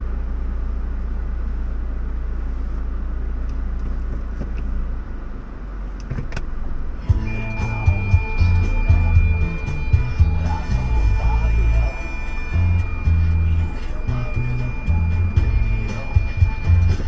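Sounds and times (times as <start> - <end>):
car engine droning: 0.0 - 17.0
music: 7.0 - 17.0.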